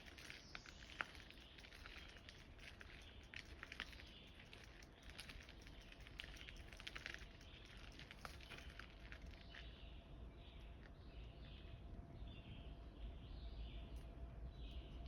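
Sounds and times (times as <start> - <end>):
soft crackles and ticks: 0.0 - 9.9, 10.5 - 12.0.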